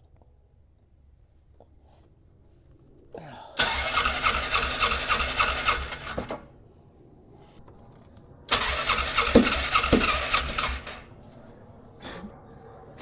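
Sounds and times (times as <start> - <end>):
engine starter cranking: 3.6 - 6.4, 8.5 - 11.1.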